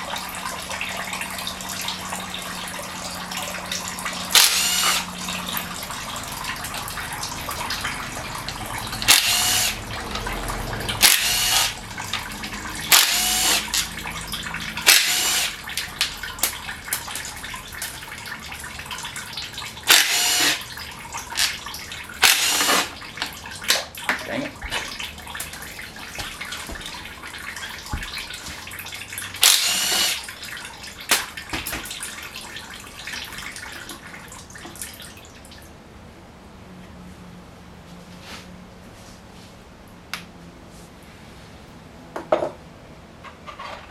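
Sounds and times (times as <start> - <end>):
steady background noise: 0.0 - 43.9
power tool bursts: 4.3 - 5.2, 9.1 - 9.8, 11.0 - 11.8, 12.9 - 13.9, 14.8 - 15.6, 19.9 - 20.7, 22.2 - 23.0, 29.4 - 30.2.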